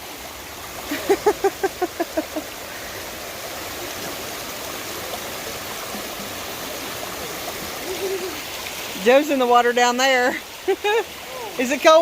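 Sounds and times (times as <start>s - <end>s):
stream flowing over rocks: 0.0s - 12.0s
person laughing: 0.9s - 2.5s.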